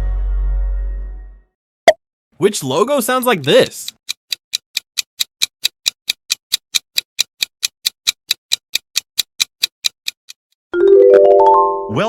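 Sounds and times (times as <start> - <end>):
countdown timer ticking: 3.4 - 10.4.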